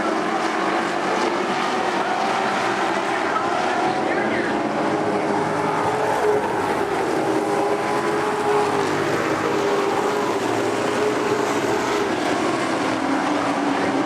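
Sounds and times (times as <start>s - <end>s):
racing truck engines droning: 0.0s - 14.0s.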